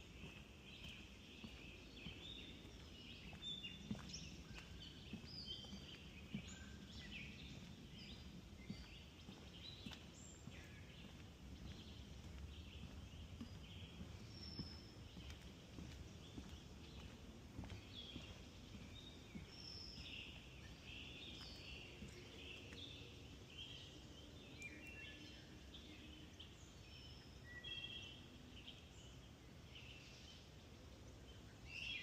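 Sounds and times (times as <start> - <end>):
footsteps on wooden boards: 0.0 - 22.9
birds chirping and singing: 0.1 - 28.1.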